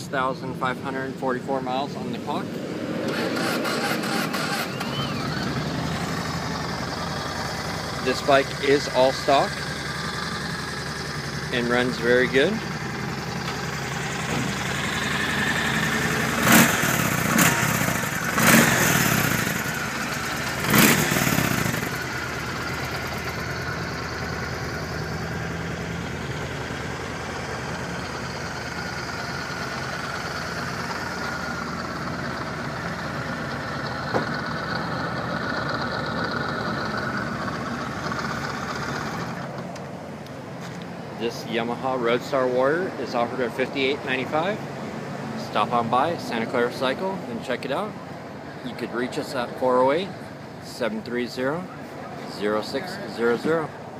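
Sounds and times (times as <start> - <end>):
motorcycle engine revving: 2.6 - 39.6
motorcycle engine idling: 4.0 - 41.1.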